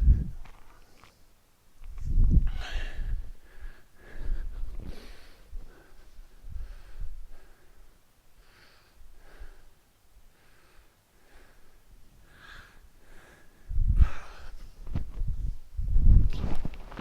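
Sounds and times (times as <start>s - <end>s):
person breathing hard: 2.4s - 14.9s.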